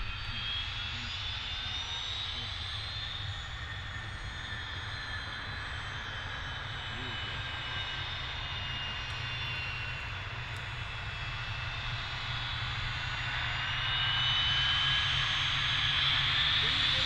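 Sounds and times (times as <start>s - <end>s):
aircraft turbine engines whining: 0.0s - 17.0s.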